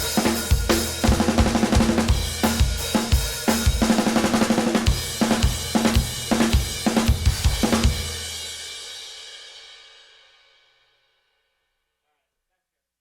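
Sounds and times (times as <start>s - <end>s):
drum kit groove: 0.0s - 9.8s.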